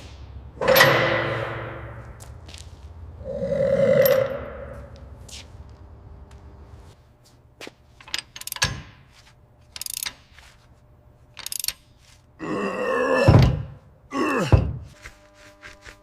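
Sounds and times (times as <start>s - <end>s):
metal parts clinking: 0.6s - 2.2s, 8.0s - 8.9s, 9.6s - 10.5s, 11.3s - 12.2s.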